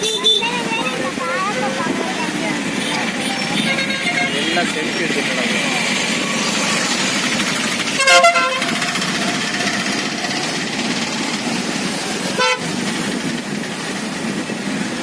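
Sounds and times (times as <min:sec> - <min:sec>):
vehicle horns honking: 0:00.0 - 0:01.0, 0:02.7 - 0:05.0, 0:07.9 - 0:09.0, 0:12.3 - 0:12.8
rushing background noise: 0:00.0 - 0:15.0.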